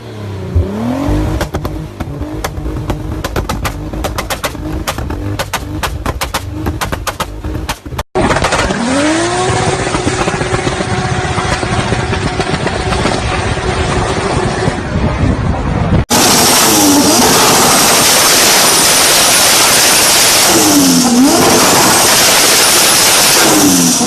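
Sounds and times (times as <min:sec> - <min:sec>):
car engine revving: 0:00.0 - 0:24.0
exhaust pops and bangs: 0:00.6 - 0:14.4.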